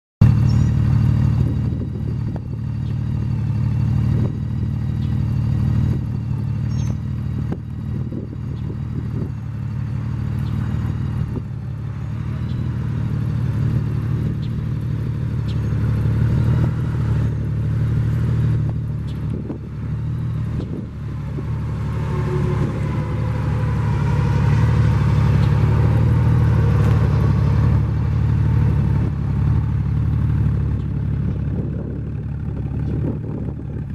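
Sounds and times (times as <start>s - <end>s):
motorcycle engine running: 0.2s - 33.9s.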